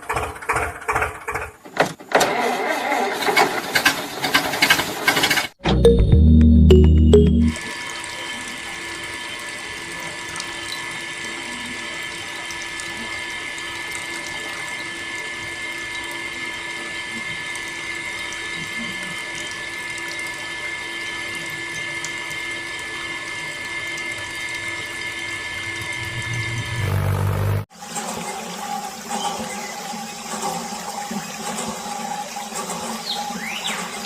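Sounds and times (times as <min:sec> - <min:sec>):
small water pump whining: 0:07.6 - 0:34.0.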